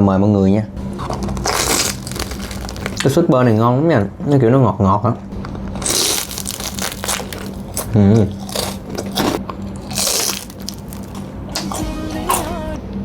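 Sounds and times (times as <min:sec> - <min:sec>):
close biting and chewing crunches: 0:00.8 - 0:03.3, 0:05.3 - 0:12.6.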